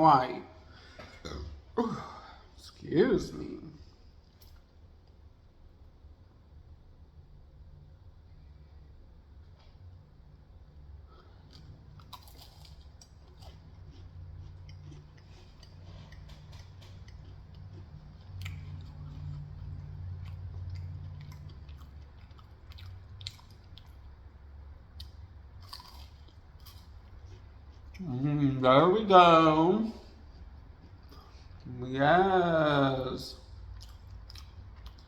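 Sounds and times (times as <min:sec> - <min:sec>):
muffled chewing: 0:10.7 - 0:28.6, 0:29.9 - 0:31.8, 0:33.4 - 0:35.0
crunching pie crust: 0:11.1 - 0:24.0.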